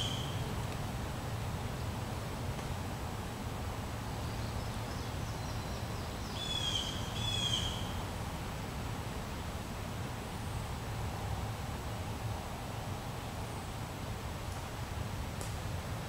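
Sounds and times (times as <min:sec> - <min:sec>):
bird calling: 0:06.3 - 0:07.9.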